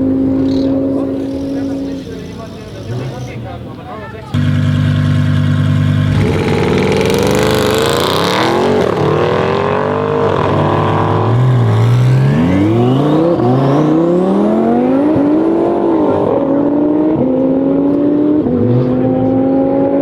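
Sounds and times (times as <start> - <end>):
car engine accelerating through upshifts: 4.4 - 20.0.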